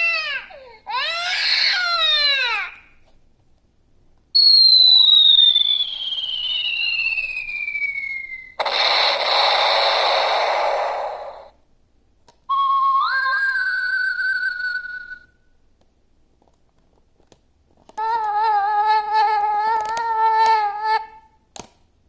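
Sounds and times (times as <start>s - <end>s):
falling whistle: 4.4s - 11.5s, 12.5s - 15.4s
explosion sound effect: 8.6s - 11.5s.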